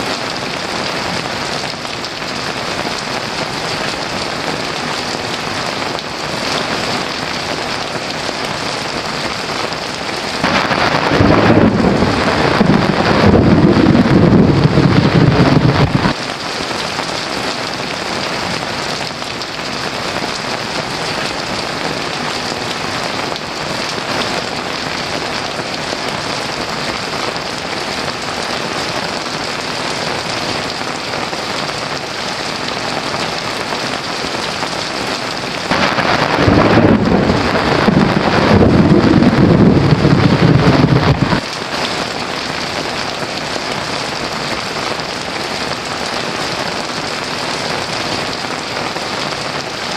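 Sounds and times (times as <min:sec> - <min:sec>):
heavy rain: 0:00.0 - 0:49.9
thunder rumble: 0:10.3 - 0:16.2, 0:35.5 - 0:41.9.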